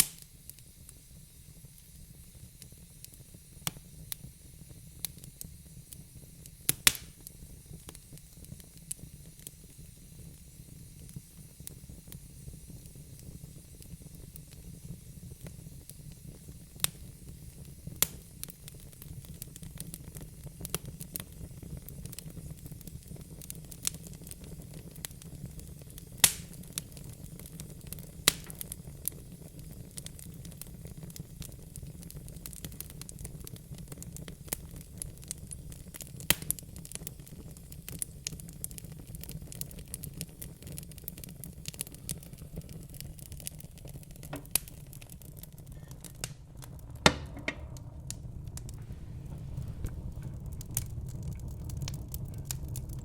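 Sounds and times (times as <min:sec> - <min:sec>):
wood fire crackling and popping: 0:00.0 - 0:53.0
low rumble: 0:44.4 - 0:53.0.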